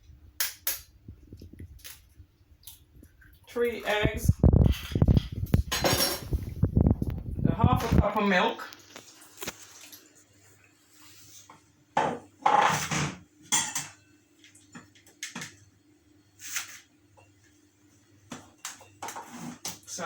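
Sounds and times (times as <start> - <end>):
dishes and utensils clattering: 4.7 - 6.6, 12.0 - 14.0.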